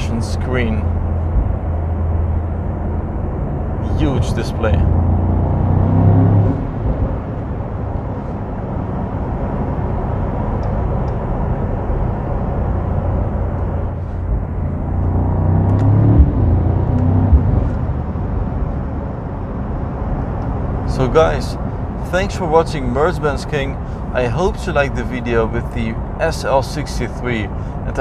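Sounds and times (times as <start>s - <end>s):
car engine running: 0.0s - 28.0s
road and tyre noise: 0.0s - 28.0s
short thumps: 17.1s - 17.9s.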